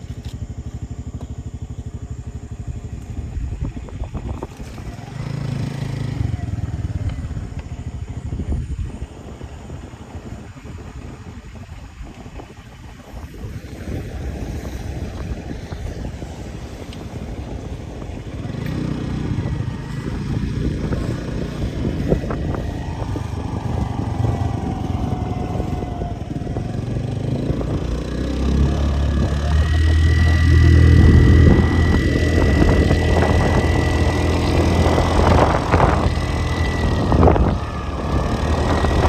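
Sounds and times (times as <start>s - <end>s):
vehicle engine running: 0.0s - 39.0s.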